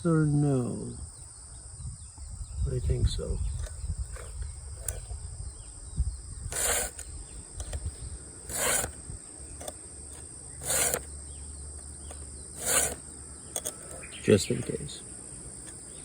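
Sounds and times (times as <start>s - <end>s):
insects buzzing: 0.0s - 16.0s
file rasping on chainsaw chain: 3.6s - 5.0s, 6.5s - 7.8s, 8.4s - 9.0s, 9.6s - 11.1s, 12.5s - 14.1s.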